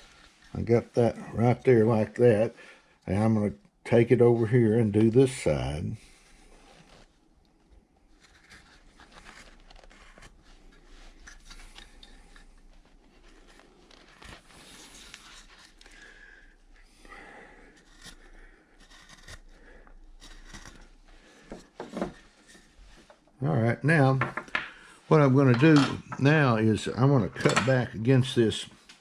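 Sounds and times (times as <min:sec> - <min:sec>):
wood carving tool scraping: 0:08.2 - 0:16.1, 0:17.7 - 0:23.2.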